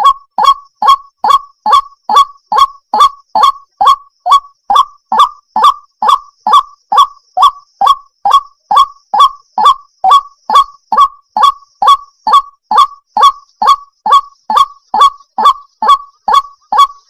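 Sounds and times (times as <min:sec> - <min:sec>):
waterhen calling: 0:00.0 - 0:17.0.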